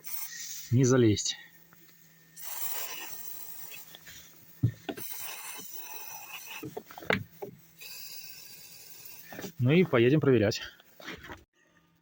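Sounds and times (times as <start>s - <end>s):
aerosol can spraying: 0.0s - 0.7s, 2.3s - 9.6s.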